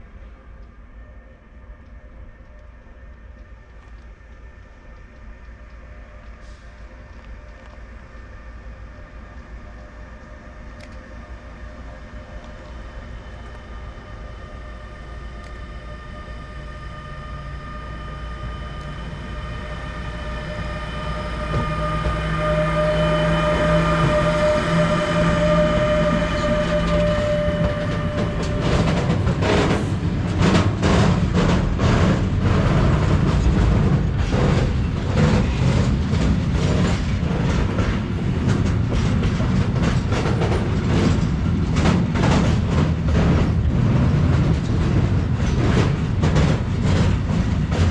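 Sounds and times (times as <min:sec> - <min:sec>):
locomotive hum and whine: 0:00.0 - 0:47.9
train rumble: 0:00.0 - 0:47.9
wheels clacking over rail joints: 0:18.5 - 0:47.9.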